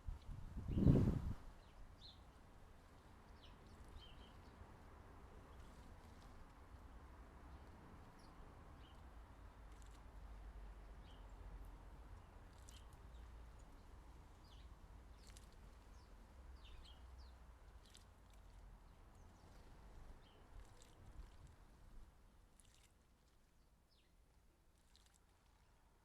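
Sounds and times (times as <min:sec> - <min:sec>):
sparrow splashing in bird bath: 0:08.8 - 0:10.1, 0:11.9 - 0:23.4, 0:24.7 - 0:25.6.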